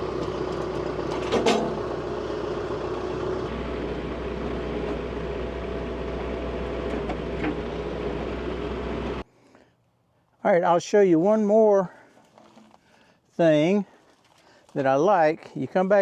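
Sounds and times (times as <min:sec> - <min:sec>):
tractor engine idling: 0:00.0 - 0:09.3.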